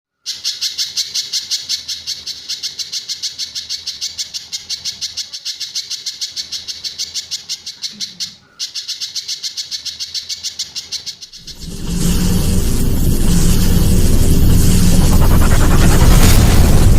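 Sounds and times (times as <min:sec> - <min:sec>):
songbird singing high repeated notes: 0:00.2 - 0:11.8.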